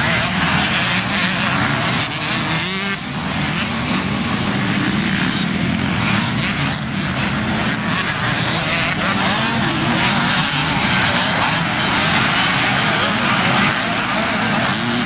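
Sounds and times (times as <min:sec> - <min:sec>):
motocross motorcycles revving: 0:00.0 - 0:15.0.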